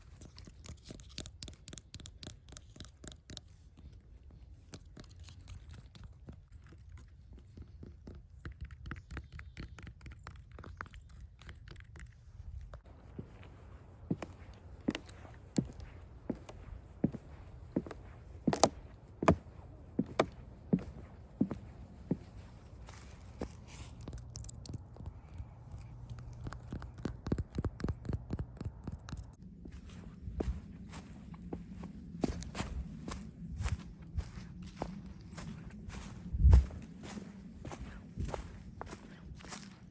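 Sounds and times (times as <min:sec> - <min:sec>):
close crackling and clicking: 0:00.0 - 0:12.9, 0:23.2 - 0:29.4
steady low rumble: 0:12.3 - 0:39.9
low rumble: 0:29.4 - 0:39.8.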